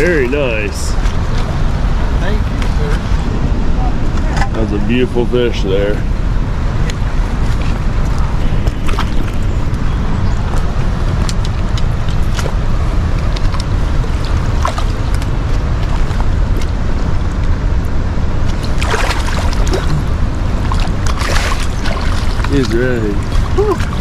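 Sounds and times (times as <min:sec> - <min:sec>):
fast-flowing river water: 0:18.5 - 0:24.0.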